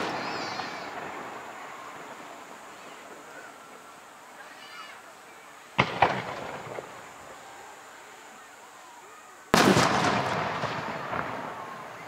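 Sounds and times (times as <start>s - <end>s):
firework bang with echo: 5.8s - 7.0s, 9.5s - 12.0s.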